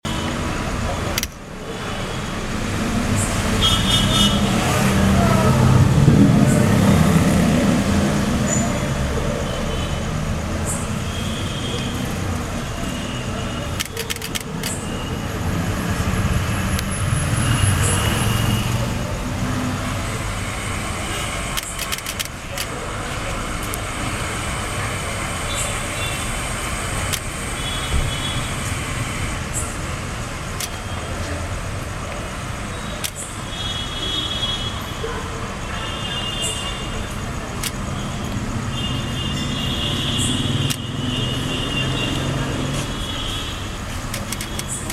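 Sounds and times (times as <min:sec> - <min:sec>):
road traffic: 0:00.0 - 0:44.9
clicks: 0:21.6 - 0:22.8, 0:44.1 - 0:44.9.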